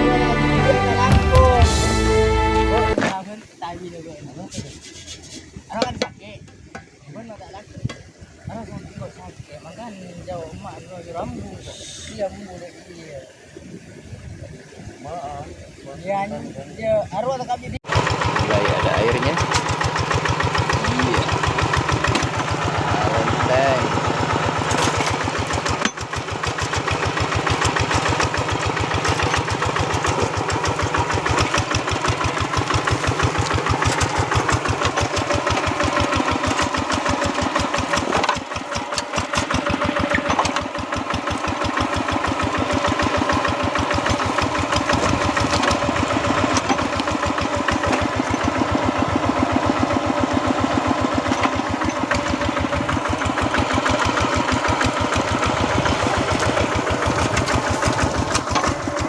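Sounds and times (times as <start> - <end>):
tractor engine chugging: 17.8 - 59.0.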